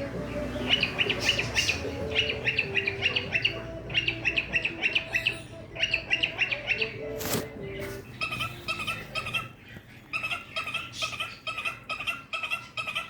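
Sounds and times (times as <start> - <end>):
cockatiel chirping: 0.5 - 13.0.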